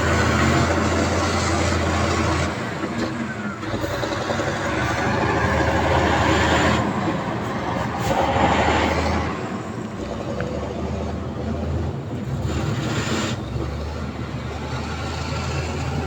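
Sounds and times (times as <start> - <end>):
diesel engine humming: 0.0 - 16.0.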